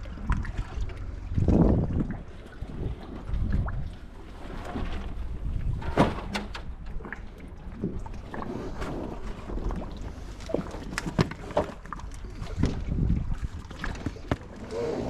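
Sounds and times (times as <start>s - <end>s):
knocks and clunks in a kayak: 0.0s - 15.0s
wind buffeting microphone: 1.1s - 4.1s, 4.8s - 7.1s, 12.3s - 14.6s.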